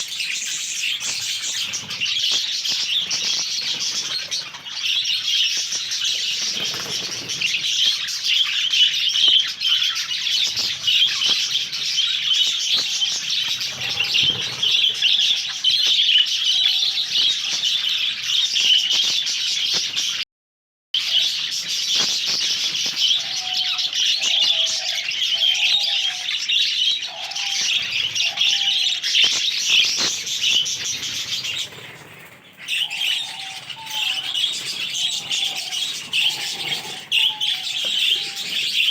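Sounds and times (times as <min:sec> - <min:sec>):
budgerigars chattering: 0:00.0 - 0:18.4, 0:21.1 - 0:38.9
wings flapping: 0:01.0 - 0:04.8, 0:06.1 - 0:08.1, 0:12.7 - 0:15.3, 0:29.2 - 0:38.9.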